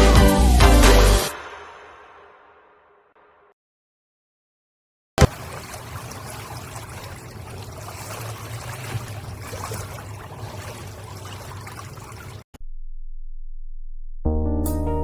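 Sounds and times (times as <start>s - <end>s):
sea water splashing and rushing: 5.2s - 12.5s.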